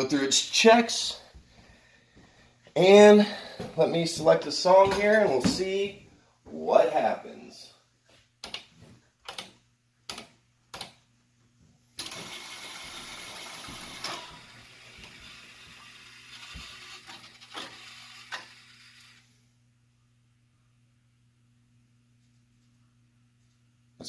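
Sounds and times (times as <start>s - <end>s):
cd changer mechanism whirring: 12.0s - 19.3s.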